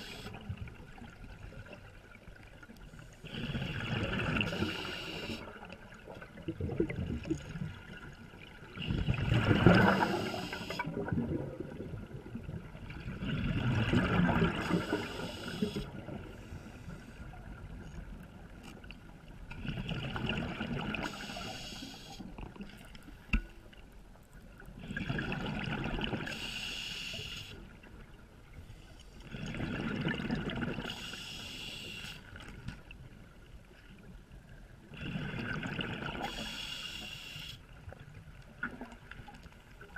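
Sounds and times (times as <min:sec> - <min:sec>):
diver exhaling bubbles: 0:08.9 - 0:12.0.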